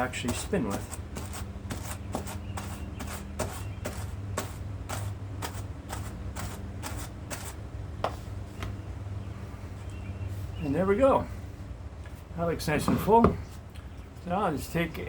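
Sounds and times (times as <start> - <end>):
hand carders brushing fur: 0.0 - 8.4
steady low hum: 0.0 - 15.0.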